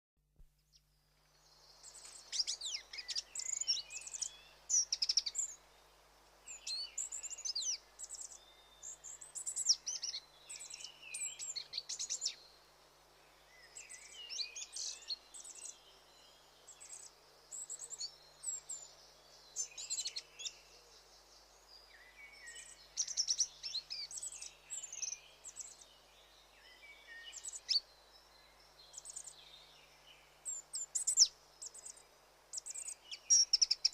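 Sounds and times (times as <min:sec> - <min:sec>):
small songbird singing: 0:00.4 - 0:33.9.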